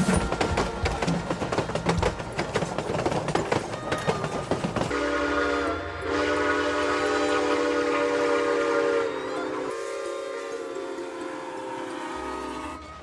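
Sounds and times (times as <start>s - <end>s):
steam locomotive clattering beat: 0.0s - 13.0s
locomotive chime whistle: 3.8s - 13.0s.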